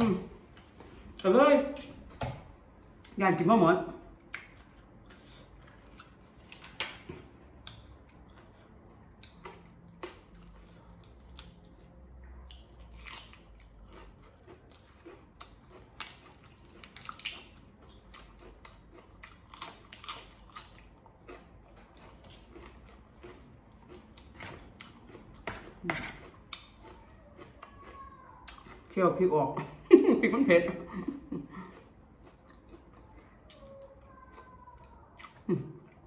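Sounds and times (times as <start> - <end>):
person chewing crunchy food: 4.3 - 29.0, 31.2 - 36.0.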